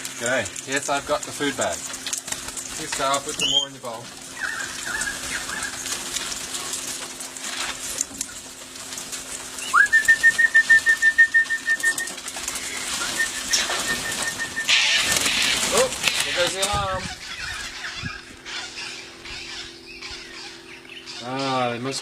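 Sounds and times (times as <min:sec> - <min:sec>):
bird alarm call: 0:03.3 - 0:06.1, 0:09.6 - 0:22.0.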